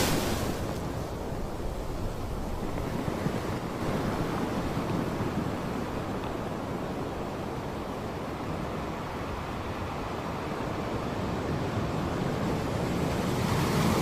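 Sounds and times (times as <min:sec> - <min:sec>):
surf breaking on beach: 0:00.0 - 0:05.7.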